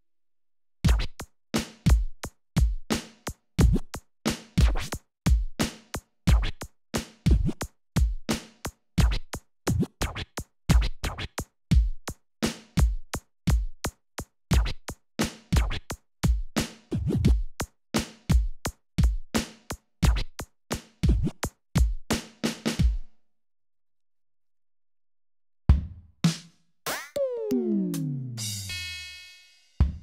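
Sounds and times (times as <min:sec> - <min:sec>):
electronic kick drum thumps: 0:00.9 - 0:01.2.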